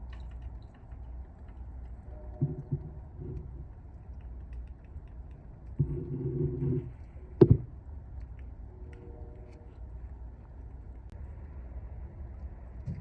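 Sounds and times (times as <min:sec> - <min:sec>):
train horn blasts: 0:02.1 - 0:02.8, 0:08.8 - 0:09.8.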